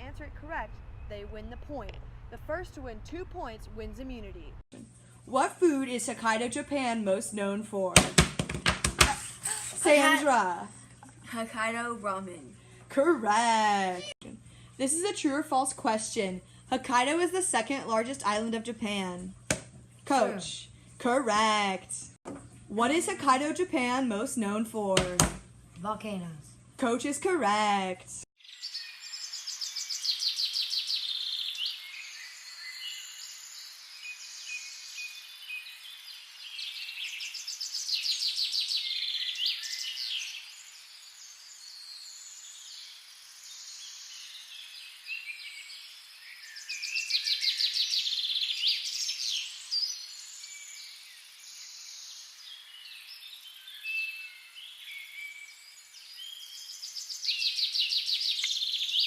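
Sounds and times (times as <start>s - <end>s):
birds trilling and chirping: 28.4s - 59.0s.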